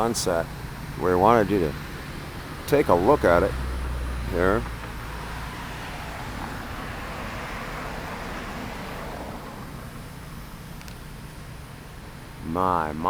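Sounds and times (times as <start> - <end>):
vehicle passing by: 0.0 - 10.4
low steady rumble: 0.0 - 13.0.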